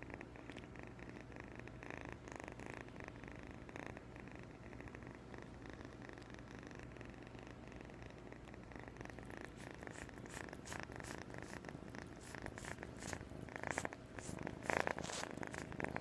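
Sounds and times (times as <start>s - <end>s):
kitten purring: 0.0s - 16.0s
scratchy rustling: 9.2s - 16.0s.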